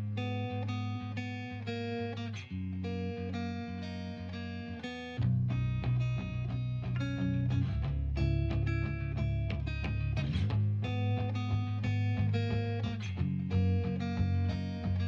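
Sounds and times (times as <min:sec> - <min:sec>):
plucked guitar music: 0:00.0 - 0:15.0
steady low bass: 0:05.2 - 0:15.0.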